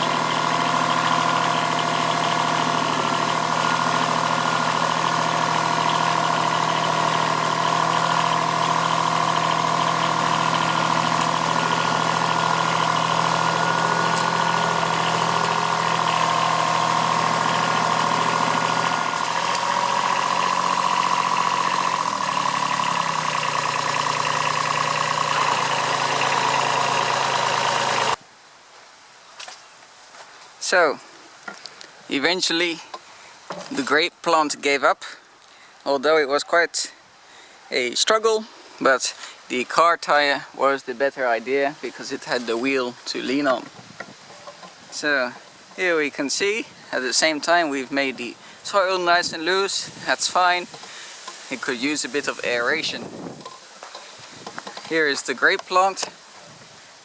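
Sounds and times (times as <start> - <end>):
tractor diesel engine running: 0.0 - 28.2, 41.9 - 56.5.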